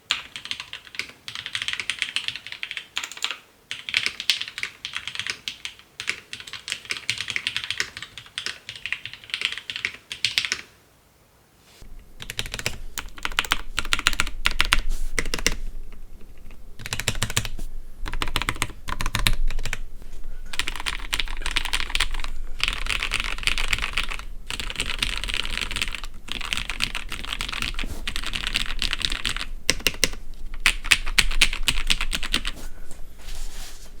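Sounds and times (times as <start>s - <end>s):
mechanical keyboard typing: 0.1s - 10.7s, 12.2s - 15.6s, 16.3s - 19.8s, 20.5s - 32.6s
low hum: 11.9s - 34.0s.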